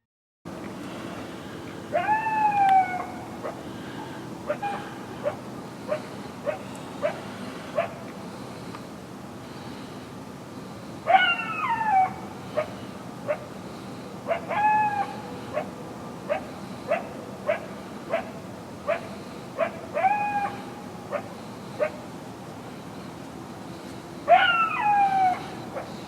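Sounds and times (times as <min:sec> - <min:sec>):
steady background hiss: 0:00.5 - 0:26.0
coyote yelps falling in pitch: 0:01.9 - 0:03.6, 0:11.1 - 0:12.7, 0:14.3 - 0:15.7, 0:19.6 - 0:21.2, 0:24.3 - 0:25.9
coyotes barking: 0:01.9 - 0:08.1, 0:11.0 - 0:22.1, 0:24.2 - 0:26.0.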